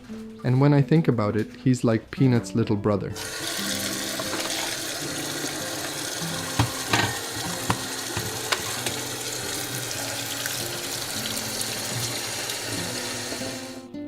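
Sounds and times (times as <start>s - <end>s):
running water rushing: 3.2s - 13.8s.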